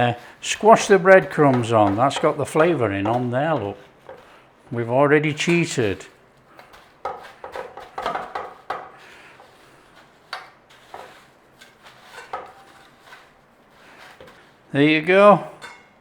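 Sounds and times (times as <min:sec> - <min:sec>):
breadcrumbs rustling and scraping: 0:00.0 - 0:15.2
dish knocking: 0:07.1 - 0:08.9.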